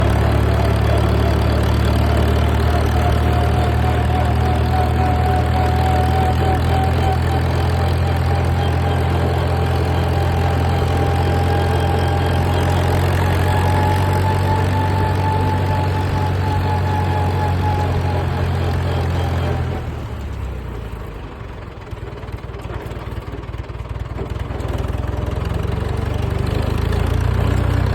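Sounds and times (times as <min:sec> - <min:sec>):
thin whine: 0:00.0 - 0:19.9
engine running steadily: 0:00.0 - 0:27.9.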